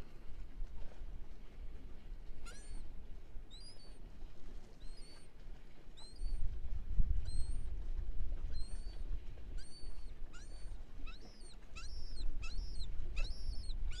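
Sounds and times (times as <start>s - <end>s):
wind rumble on microphone: 0.0s - 14.0s
birds whistling calls: 2.4s - 2.9s, 3.5s - 4.0s, 4.8s - 5.3s, 6.0s - 6.4s, 7.2s - 7.7s, 8.5s - 14.0s.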